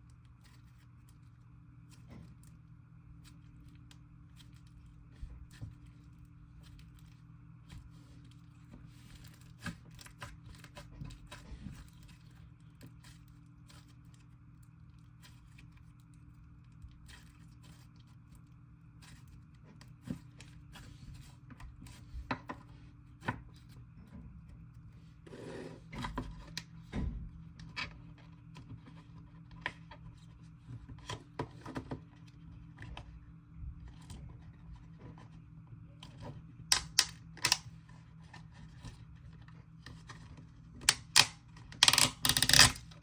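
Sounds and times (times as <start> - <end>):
faint steady hum: 0.0 - 43.0
sticky clicks and crackles: 36.7 - 37.7, 40.8 - 43.0.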